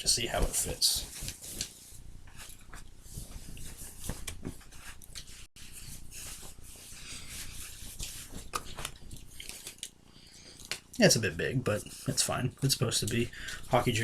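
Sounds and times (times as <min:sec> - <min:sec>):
fabric rustling and rubbing: 0:00.4 - 0:09.8.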